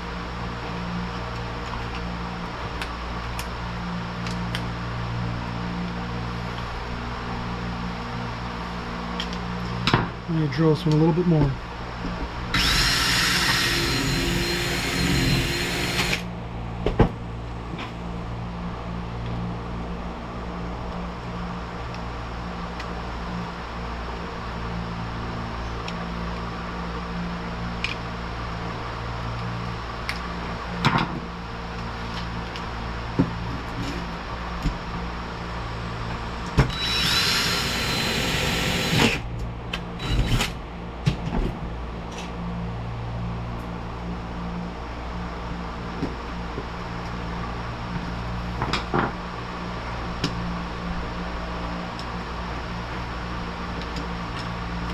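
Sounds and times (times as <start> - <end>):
electric drill whining: 12.5 - 16.3, 36.7 - 39.2, 40.0 - 40.6.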